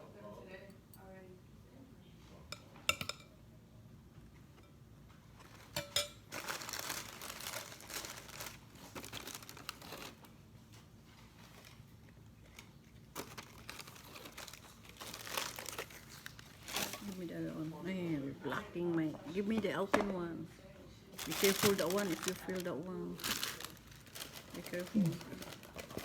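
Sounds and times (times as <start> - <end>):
packaging crinkling: 5.4 - 10.3, 11.2 - 17.3, 21.2 - 26.0.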